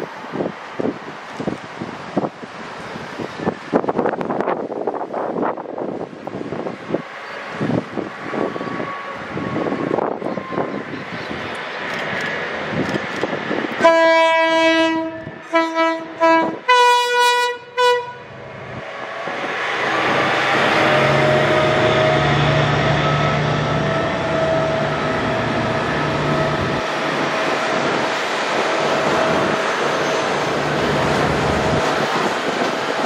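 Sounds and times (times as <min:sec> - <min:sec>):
train wheels rolling: 0:00.0 - 0:14.0, 0:18.5 - 0:33.0
locomotive multi-chime horn: 0:13.8 - 0:18.2
locomotive engine drone: 0:17.6 - 0:33.0.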